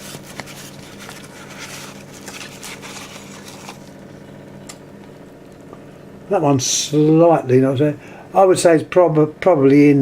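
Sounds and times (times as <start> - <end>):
wrapping rustling: 0.0 - 4.2
steady low hum: 0.0 - 10.0.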